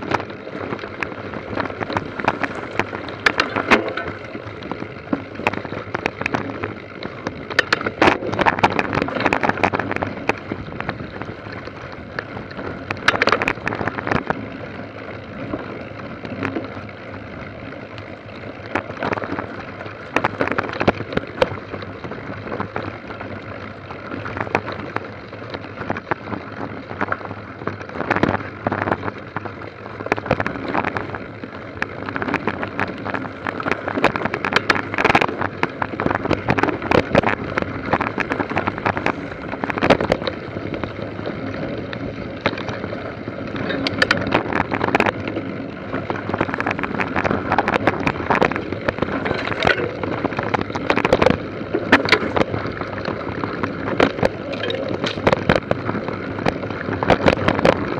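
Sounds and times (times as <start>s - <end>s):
bicycle rattles and knocks: 0.0s - 57.9s
tyre and wind noise: 0.0s - 57.9s.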